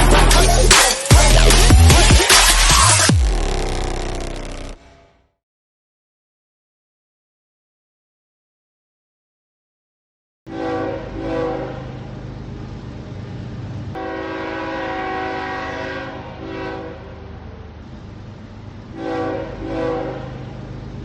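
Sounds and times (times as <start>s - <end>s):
locomotive air horn blasts: 10.5s - 12.0s, 14.0s - 17.3s, 18.9s - 20.5s.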